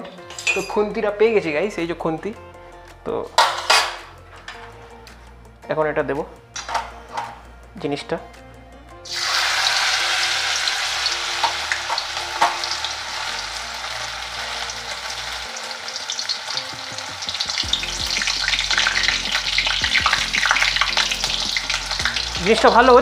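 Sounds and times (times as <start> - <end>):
batter sizzling in hot oil: 9.0 - 23.0
oil popping and crackling: 9.1 - 23.0.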